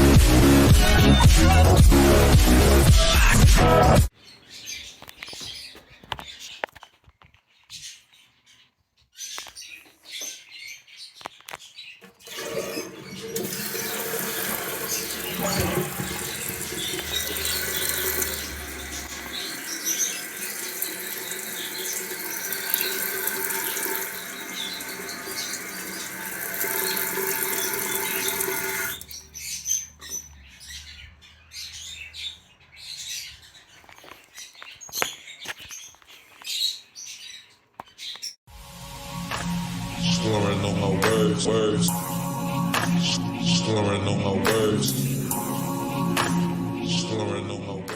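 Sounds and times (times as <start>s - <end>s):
toilet flushing: 12.0s - 29.2s
water rushing as tank refills: 12.0s - 29.2s.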